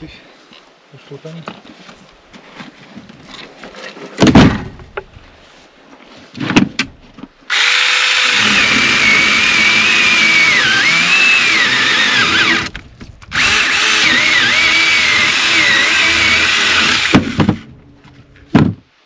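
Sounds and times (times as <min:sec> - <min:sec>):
chainsaw running at high speed: 0:07.5 - 0:12.7, 0:13.4 - 0:17.4.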